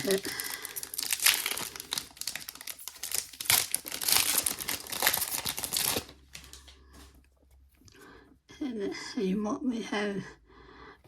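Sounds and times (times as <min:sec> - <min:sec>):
wrapper crinkling torn open: 0:00.0 - 0:06.7.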